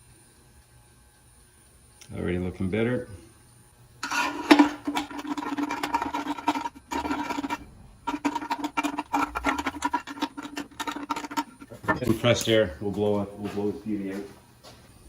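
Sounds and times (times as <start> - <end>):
rag scrubbing metal part: 4.0 - 12.3.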